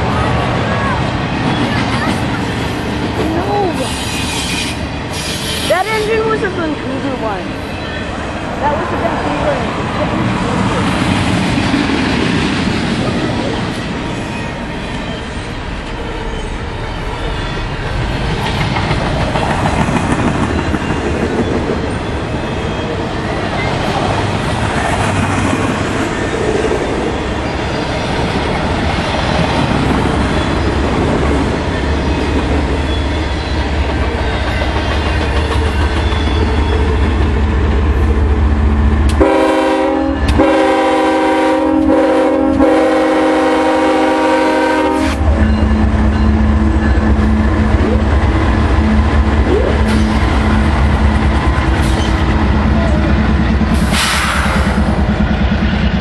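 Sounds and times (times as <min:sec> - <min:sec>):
diesel locomotive engine rumble: 0:00.0 - 0:56.0
train wheels on rails: 0:00.0 - 0:56.0
locomotive air horn: 0:39.2 - 0:45.3.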